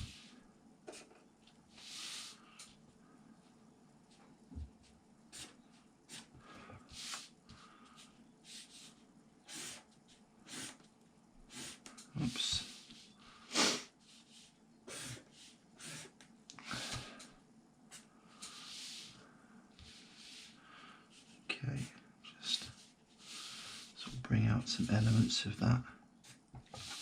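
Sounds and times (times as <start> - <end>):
pen scratching on paper: 8.4 - 10.9, 14.1 - 16.2.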